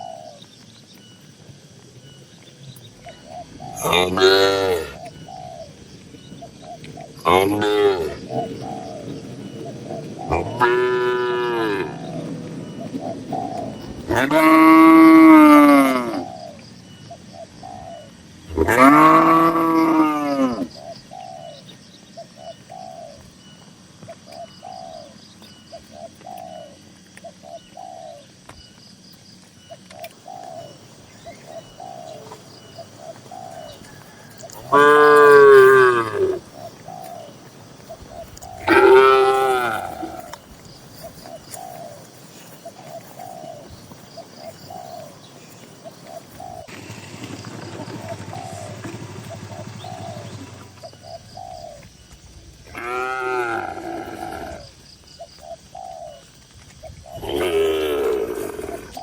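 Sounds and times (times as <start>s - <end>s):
bird cooing: 0.0s - 28.7s, 29.6s - 59.0s
cows mooing: 3.8s - 5.0s, 7.3s - 8.5s, 10.3s - 12.3s, 14.0s - 16.2s, 18.5s - 20.7s, 34.3s - 36.5s, 38.6s - 40.4s, 52.7s - 54.8s, 57.2s - 59.0s.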